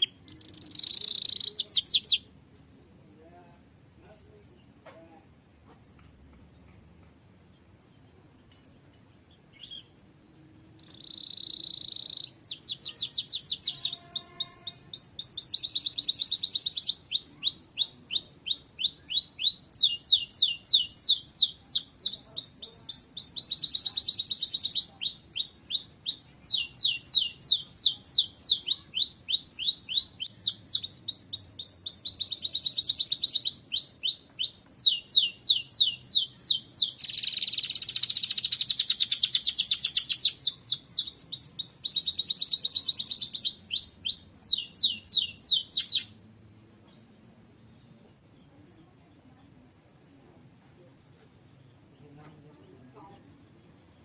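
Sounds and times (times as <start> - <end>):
canary singing: 0.0 - 3.8, 9.3 - 46.3.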